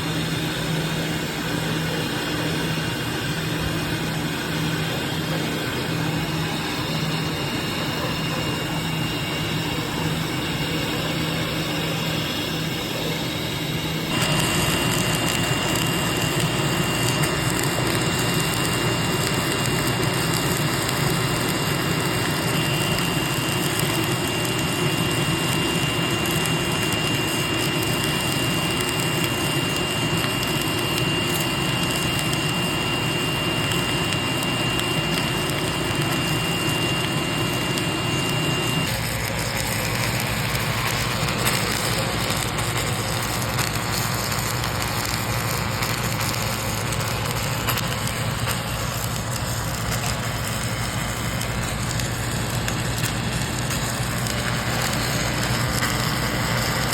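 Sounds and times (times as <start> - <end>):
thin high whine: 0.0 - 56.9
welding machine noise: 0.0 - 56.9.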